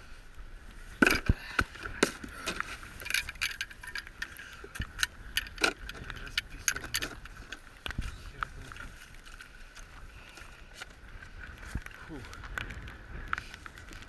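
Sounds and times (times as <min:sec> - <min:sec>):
hard gear clattering: 0:01.0 - 0:09.4.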